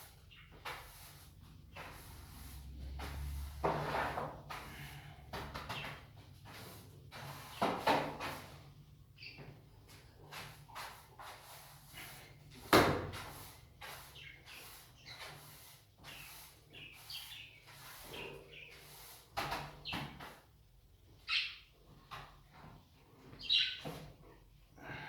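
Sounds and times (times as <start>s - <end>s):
budgerigars chirping: 23.4s - 23.8s.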